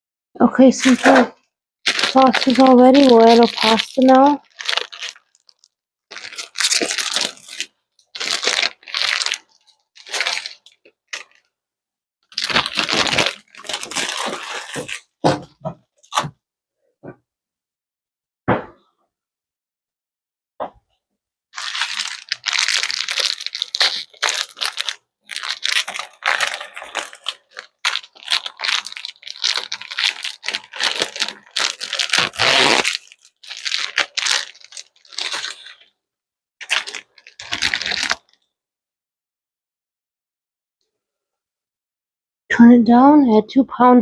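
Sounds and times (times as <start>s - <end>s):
plastic packets crinkling and tearing: 0.7s - 11.5s, 12.3s - 16.3s, 21.6s - 35.9s, 36.6s - 38.4s.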